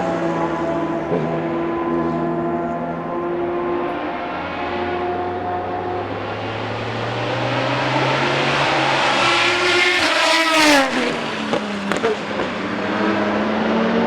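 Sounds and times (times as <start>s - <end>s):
race car passing at speed: 0.0s - 14.0s
race engines in background: 0.0s - 14.0s.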